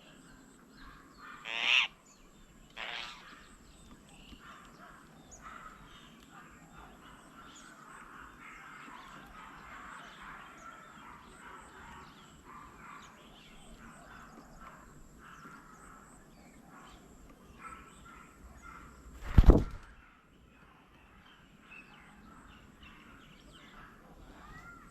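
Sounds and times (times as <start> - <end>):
birds chirping and calling: 0.0 - 24.9.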